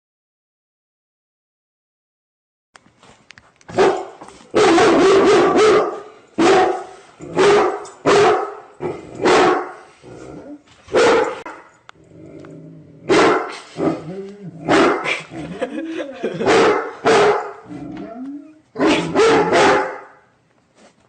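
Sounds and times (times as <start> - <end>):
dog barking: 3.7 - 9.8, 10.9 - 11.7, 13.1 - 14.1, 14.7 - 15.1, 16.4 - 17.6, 18.8 - 20.3.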